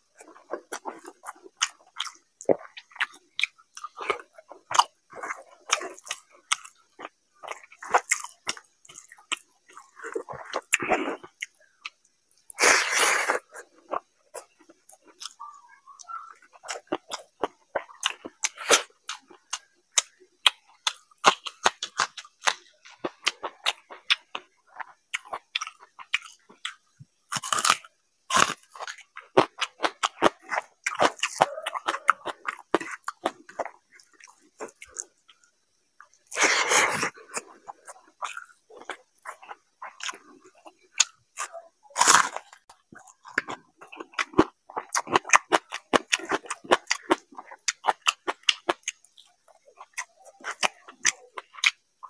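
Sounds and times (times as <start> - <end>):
person chewing food: 0.0 - 52.0.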